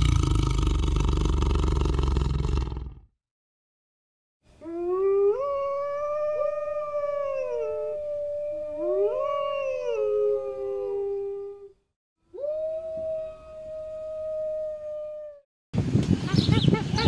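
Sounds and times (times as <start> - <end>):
wolves howling: 4.6 - 11.7.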